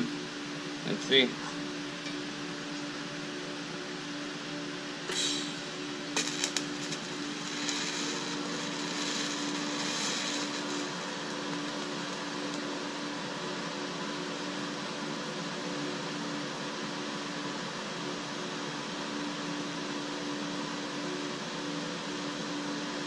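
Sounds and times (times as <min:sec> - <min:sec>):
steady machine hum: 0:00.0 - 0:23.0
hiss: 0:05.1 - 0:06.5.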